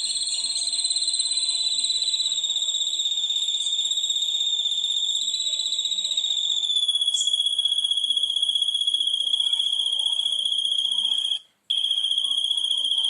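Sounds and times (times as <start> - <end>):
high chirp: 5.4 - 13.0
high-pitched pulsing bird trill: 5.5 - 13.0.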